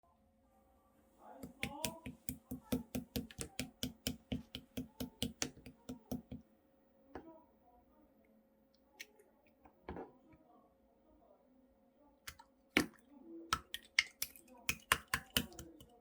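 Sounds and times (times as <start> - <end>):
soft slime squishes: 1.2 - 6.4, 12.3 - 16.0.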